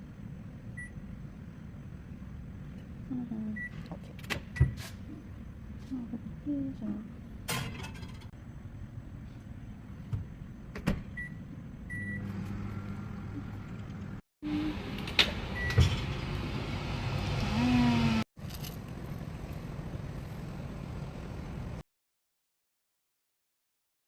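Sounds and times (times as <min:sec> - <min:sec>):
appliance humming: 0:00.0 - 0:18.3.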